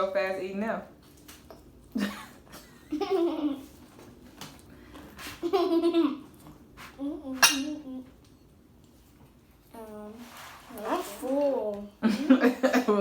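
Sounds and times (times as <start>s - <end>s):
girl making wordless sounds: 7.0s - 8.2s, 9.7s - 12.0s
tableware clink: 7.4s - 7.8s.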